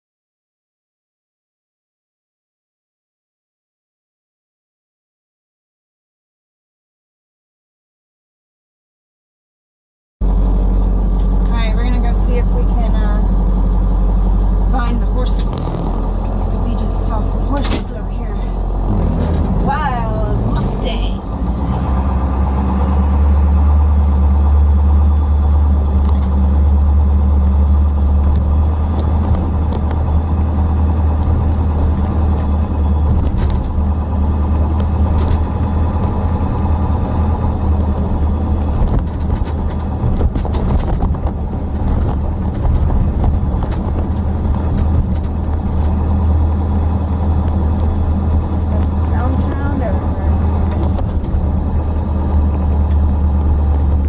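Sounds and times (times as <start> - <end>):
truck engine rumbling: 10.2 - 54.0
small clicks and rattles: 37.8 - 46.2.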